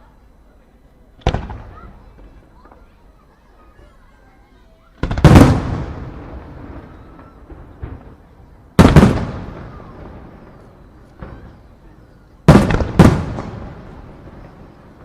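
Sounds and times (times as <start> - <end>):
firework shells bursting: 12.4 - 15.0.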